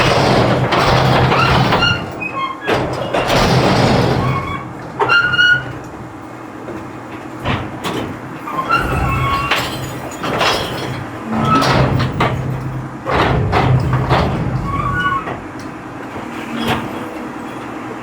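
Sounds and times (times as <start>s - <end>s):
metal clanks and rattles: 0.0s - 17.7s
garbage truck engine running: 0.0s - 18.0s
high-pitched metal squeals: 8.5s - 10.2s, 11.1s - 12.9s.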